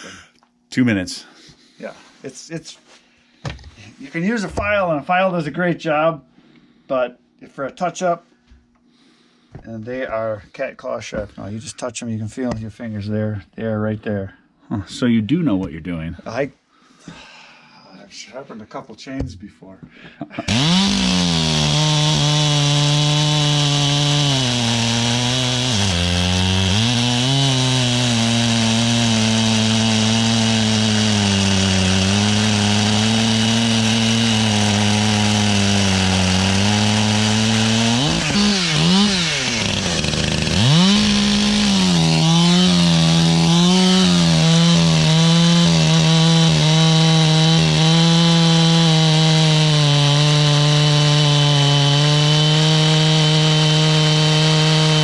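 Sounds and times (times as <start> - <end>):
chainsaw cutting wood: 20.4 - 55.0.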